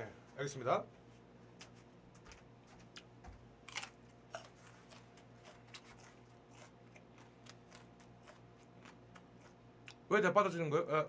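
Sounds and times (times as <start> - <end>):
man chewing green onion: 1.5 - 10.1
crisp crunches: 3.7 - 9.6.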